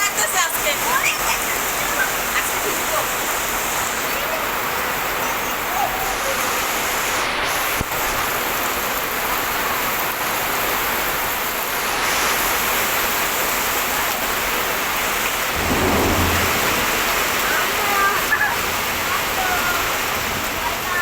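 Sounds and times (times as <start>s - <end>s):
heavy rain pouring: 0.0s - 21.0s
low rumble: 15.5s - 18.4s.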